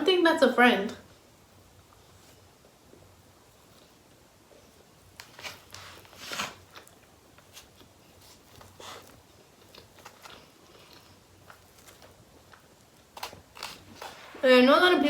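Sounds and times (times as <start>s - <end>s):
person biting and chewing food: 8.7s - 14.4s.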